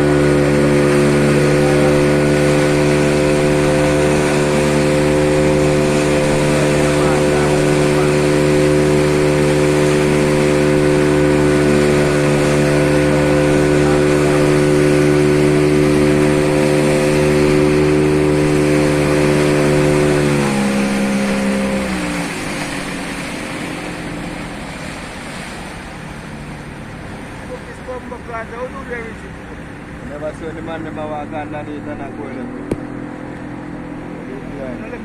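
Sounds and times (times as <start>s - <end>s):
motorboat engine running: 0.0s - 35.0s.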